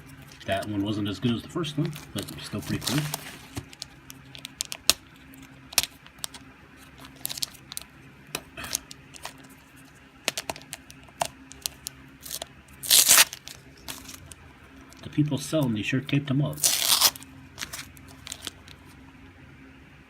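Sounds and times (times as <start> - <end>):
faint steady hum: 0.0 - 20.0
cards and packaging clicking and rustling: 1.8 - 15.1, 16.6 - 18.8.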